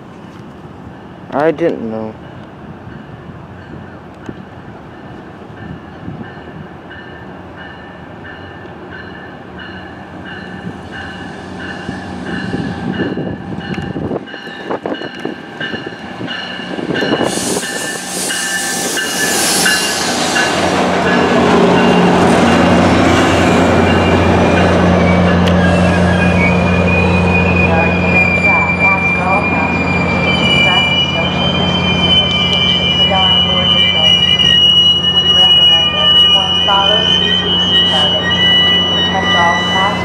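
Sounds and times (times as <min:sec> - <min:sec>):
diesel locomotive engine drone: 0:00.0 - 0:40.0
locomotive bell ringing: 0:04.9 - 0:40.0
hissing wheel and rail noise: 0:10.3 - 0:23.3.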